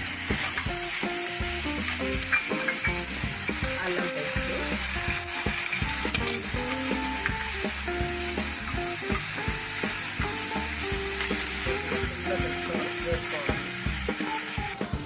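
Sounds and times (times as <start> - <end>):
food sizzling in hot oil: 0.0 - 15.0
spoon knocking and scraping pot: 0.2 - 12.7.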